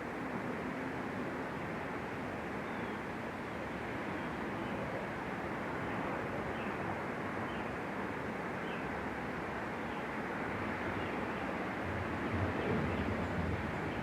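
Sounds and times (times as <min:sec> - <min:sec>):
rushing outdoor background noise: 0:00.0 - 0:14.0.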